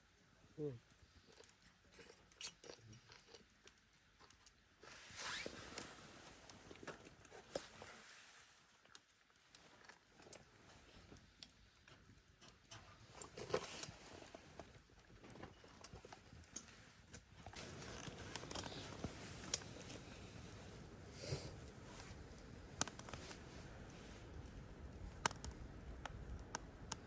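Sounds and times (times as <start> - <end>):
campfire crackling: 0.0 - 27.0
hissing rustle: 4.8 - 8.8.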